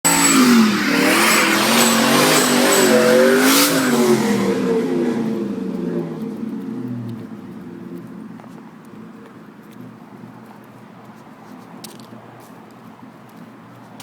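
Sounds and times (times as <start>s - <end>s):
car engine revving: 0.0s - 8.8s
tires spinning hiss: 0.1s - 8.4s.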